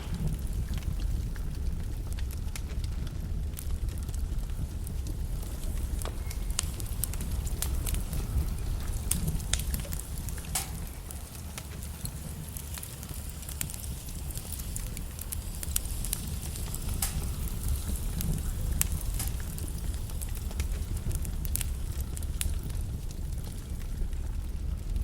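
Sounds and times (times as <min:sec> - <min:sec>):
logs crackling and popping: 0:00.0 - 0:25.0
low rumble of flames: 0:00.0 - 0:25.0.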